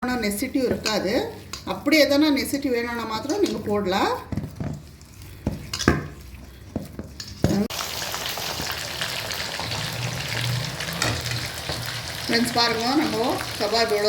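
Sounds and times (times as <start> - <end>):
chicken frying in hot oil: 7.4 - 14.0.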